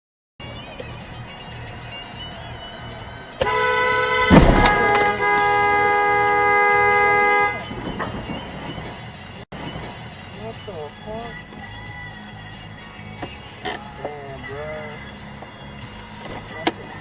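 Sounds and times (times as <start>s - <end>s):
road noise: 0.4s - 17.0s
vehicle horn blaring: 3.4s - 8.0s
loud heavy thump: 4.2s - 5.2s.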